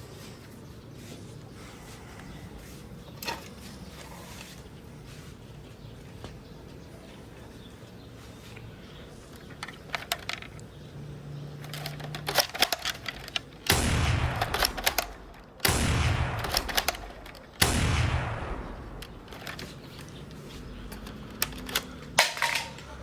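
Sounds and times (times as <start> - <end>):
rifle handling clicks: 9.3 - 10.8, 11.6 - 17.7, 18.7 - 23.0
loud rifle shots: 13.6 - 19.6.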